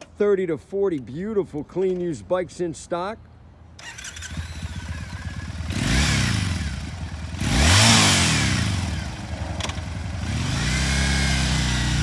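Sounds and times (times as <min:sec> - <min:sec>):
motorcycle engine idling and revving: 0:03.8 - 0:12.0.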